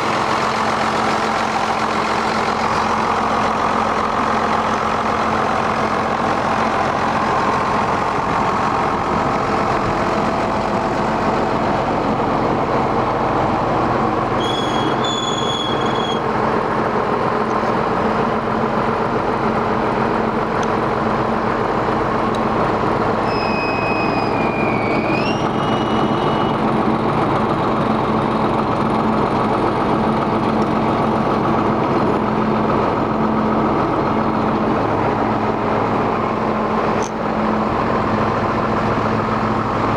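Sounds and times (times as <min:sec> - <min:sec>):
tractor diesel engine running: 0:00.0 - 0:39.9
high-pitched squeals: 0:14.4 - 0:16.2, 0:23.2 - 0:26.8.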